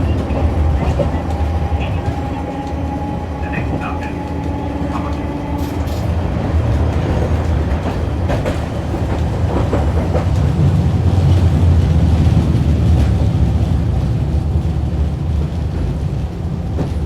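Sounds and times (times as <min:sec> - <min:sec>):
tram wheels rumbling: 0:00.0 - 0:17.0.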